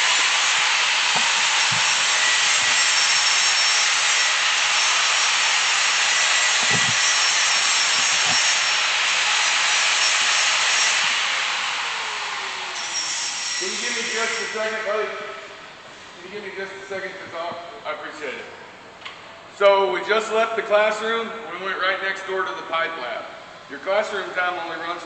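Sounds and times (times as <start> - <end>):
angle grinder on steel: 0.0 - 14.6.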